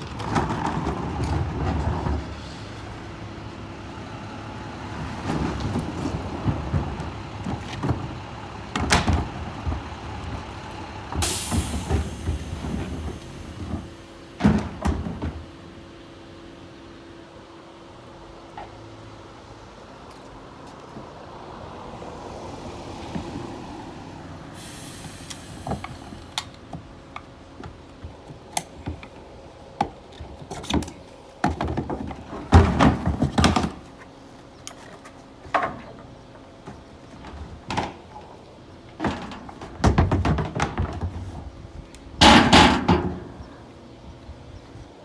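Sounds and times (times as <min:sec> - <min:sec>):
plastic trash cans knocking and rattling: 0:00.0 - 0:02.4, 0:05.1 - 0:15.9, 0:26.8 - 0:34.0, 0:35.5 - 0:43.6.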